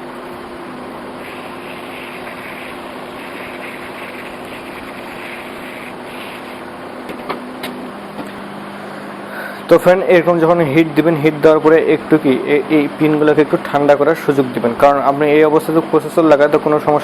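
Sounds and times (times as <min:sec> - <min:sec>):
hot air gun blowing: 0:01.2 - 0:06.8.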